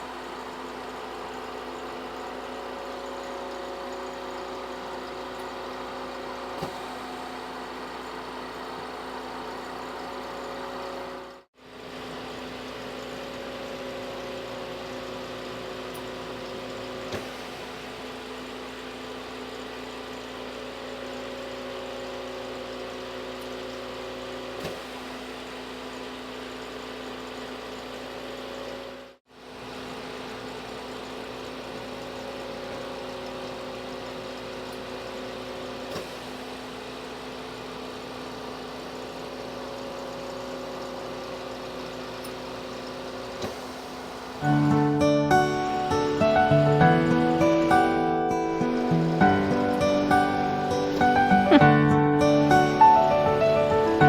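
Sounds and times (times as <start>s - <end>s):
machine hum: 44.0s - 54.0s.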